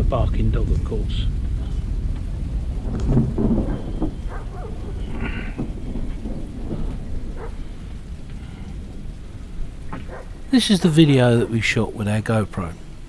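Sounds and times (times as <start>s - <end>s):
thunder rumbling: 0.0s - 13.0s.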